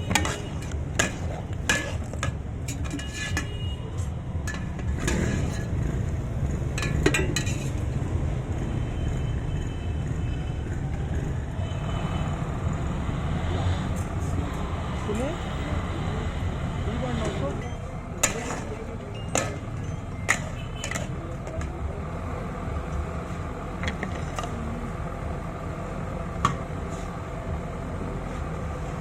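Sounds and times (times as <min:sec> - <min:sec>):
utensils and dishes clinking: 0:00.0 - 0:03.8, 0:04.4 - 0:05.8, 0:06.8 - 0:07.9, 0:17.6 - 0:21.7, 0:23.8 - 0:24.6.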